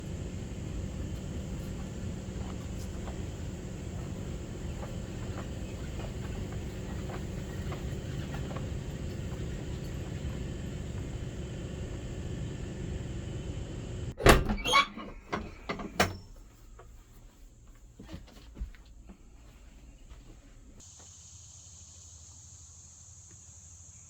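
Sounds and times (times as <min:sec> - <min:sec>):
low rumbling noise: 0:00.0 - 0:14.2.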